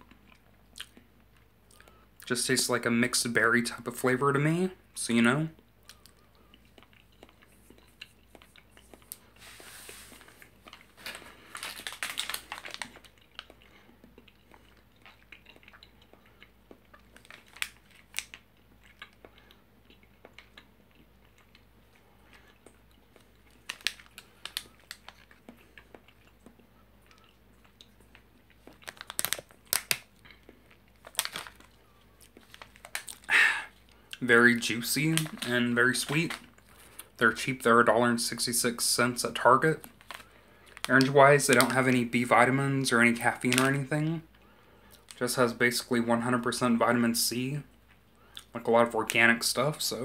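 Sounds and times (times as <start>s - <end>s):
wet chewing smacks: 5.8s - 9.2s, 12.8s - 34.2s
snack packet crinkling: 5.8s - 43.9s, 44.9s - 45.9s.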